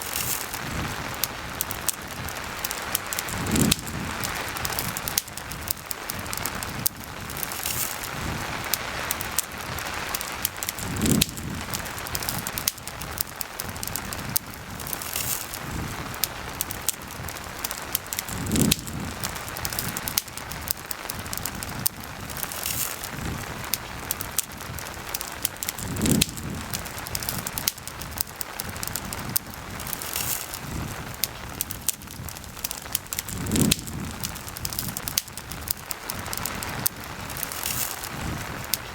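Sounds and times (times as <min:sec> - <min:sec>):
campfire crackling: 0:00.0 - 0:38.9
steady rain: 0:00.0 - 0:38.9.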